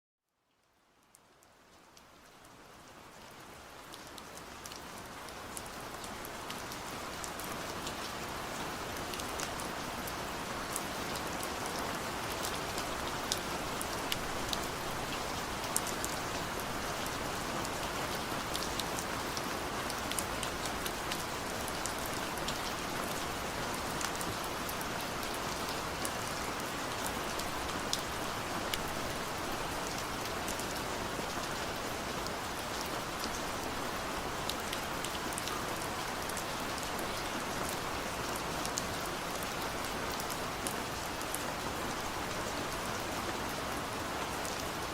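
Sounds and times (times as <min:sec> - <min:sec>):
heavy rain falling: 0:02.6 - 0:44.9.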